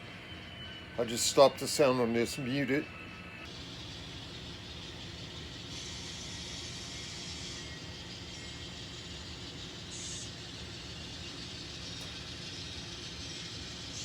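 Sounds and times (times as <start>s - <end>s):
model train motor hum and rattle: 3.5s - 14.0s.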